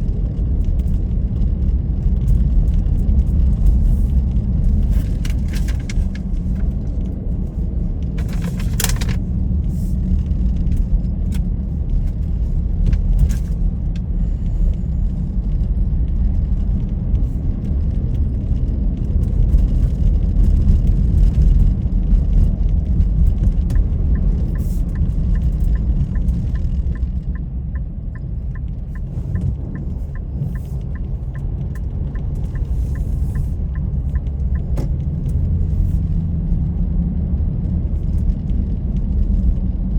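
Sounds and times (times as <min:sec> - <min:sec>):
car engine and road noise: 0:00.0 - 0:39.9
regular ticking: 0:23.7 - 0:34.8.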